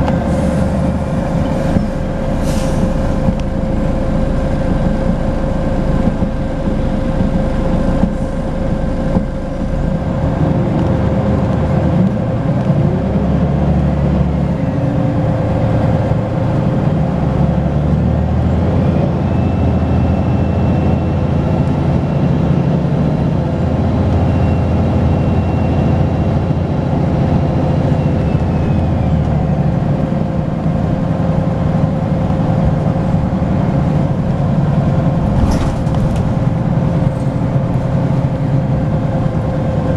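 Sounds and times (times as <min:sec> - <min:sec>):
steady whine: 0:00.0 - 0:12.7
bus diesel engine running: 0:00.0 - 0:39.9.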